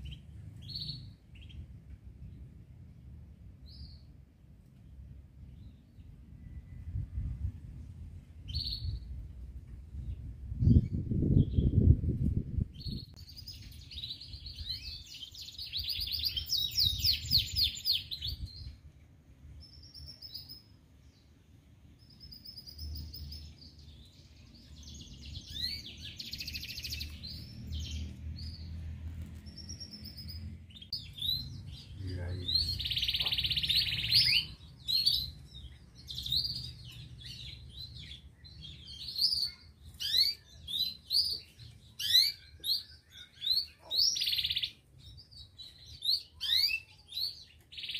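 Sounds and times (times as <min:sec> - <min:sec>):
canary trilling and chirping: 0:22.0 - 0:47.9.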